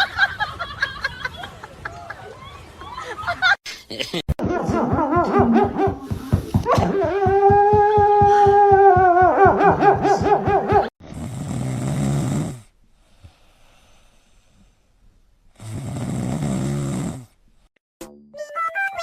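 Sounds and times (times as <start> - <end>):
pet snoring: 11.0 - 12.7, 15.6 - 17.3
music: 18.0 - 19.0.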